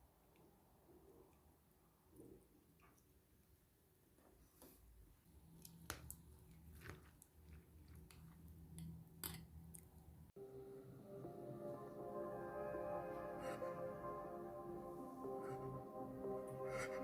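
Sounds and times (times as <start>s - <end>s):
soft music: 10.4s - 17.0s.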